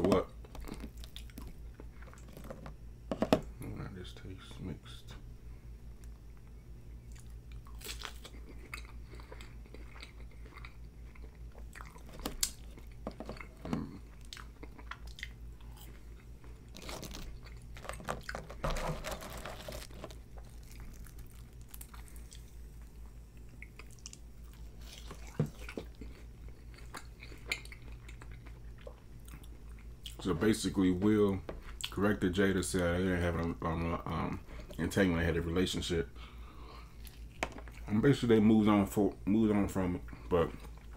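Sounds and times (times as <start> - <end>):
low steady hum: 0.0 - 40.9
person chewing food: 0.1 - 3.6, 6.0 - 30.2, 36.3 - 37.9.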